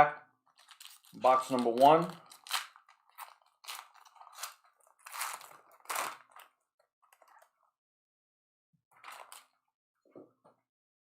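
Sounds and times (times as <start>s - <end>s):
wrapper tearing open: 0.6s - 6.5s, 9.0s - 9.5s.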